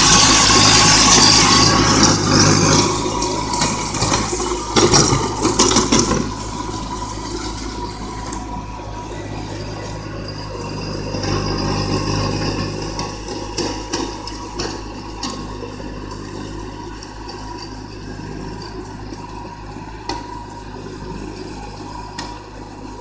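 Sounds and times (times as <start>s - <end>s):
rushing noise: 0.0s - 15.3s
tractor engine humming: 0.0s - 23.0s.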